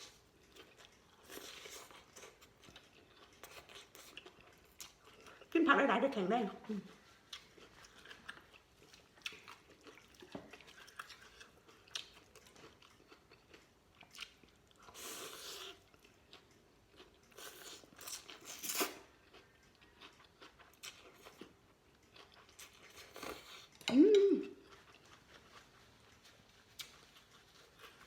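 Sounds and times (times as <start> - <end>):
person chewing and crunching: 0.0 - 5.6, 6.9 - 23.9, 24.5 - 28.0.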